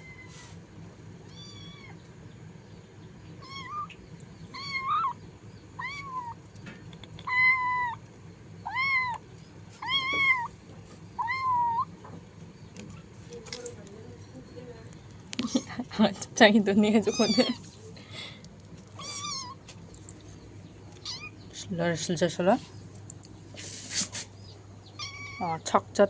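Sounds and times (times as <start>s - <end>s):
cat meowing: 1.2s - 2.0s, 3.4s - 5.2s, 5.8s - 6.4s, 7.2s - 8.0s, 8.6s - 9.2s, 9.8s - 10.5s, 11.2s - 11.9s, 17.0s - 17.6s, 19.0s - 19.6s, 21.0s - 21.4s, 25.0s - 25.6s.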